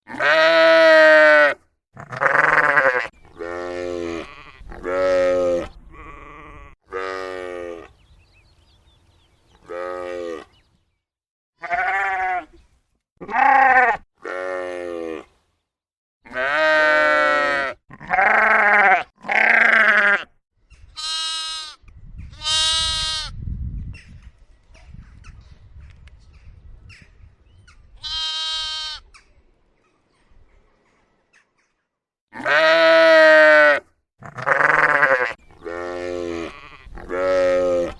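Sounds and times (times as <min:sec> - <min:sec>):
sheep and lambs bleating: 0:00.0 - 0:07.9, 0:09.6 - 0:10.6, 0:11.6 - 0:12.6, 0:13.2 - 0:15.3, 0:16.3 - 0:20.3, 0:20.9 - 0:23.4, 0:28.0 - 0:29.1, 0:32.3 - 0:37.9.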